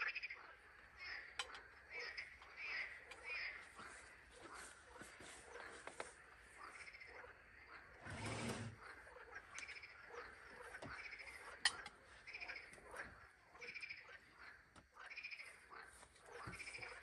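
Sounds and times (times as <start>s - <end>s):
frogs calling: 0.0s - 17.0s.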